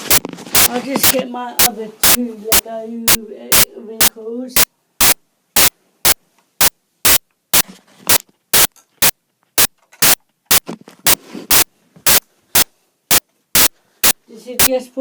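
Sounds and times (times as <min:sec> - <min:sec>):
loud sharp clicks: 0:00.0 - 0:03.7, 0:04.6 - 0:14.7
faint handling rustle: 0:10.6 - 0:14.4.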